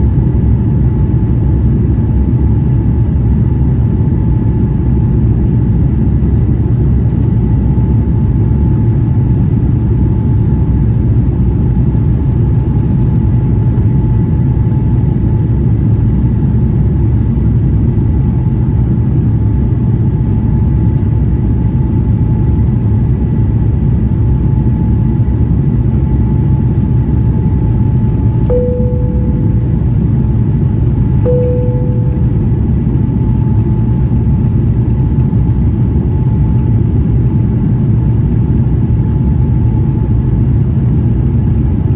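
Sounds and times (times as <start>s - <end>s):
aircraft cabin engine rumble: 0.0s - 41.9s
faint steady whine: 28.4s - 33.8s.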